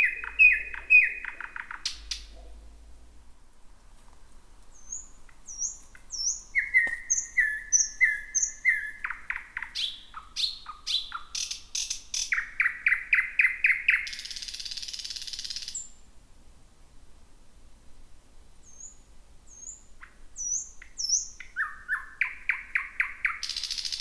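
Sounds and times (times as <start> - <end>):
nightingale singing: 0.0 - 2.6, 4.7 - 16.0, 18.6 - 24.0.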